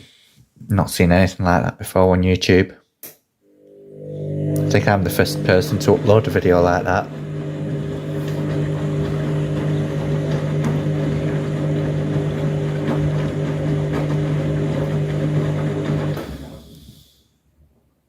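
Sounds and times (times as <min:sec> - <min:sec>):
washing machine humming: 0:03.6 - 0:16.9.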